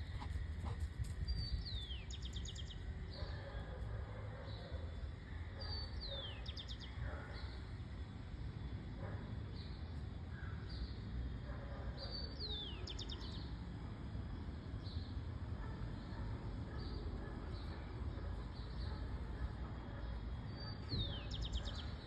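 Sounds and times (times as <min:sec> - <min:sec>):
small birds chirping: 0:12.0 - 0:13.7, 0:20.0 - 0:22.0.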